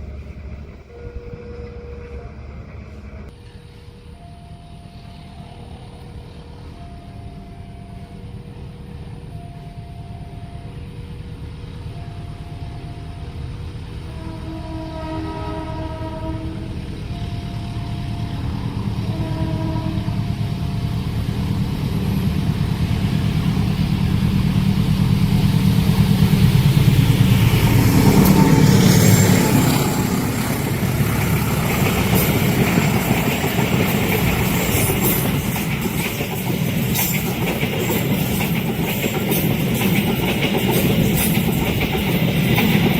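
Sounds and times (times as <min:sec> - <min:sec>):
locomotive engine rumble: 0:00.0 - 0:42.9
train horn blasts: 0:00.2 - 0:03.4, 0:14.0 - 0:20.7.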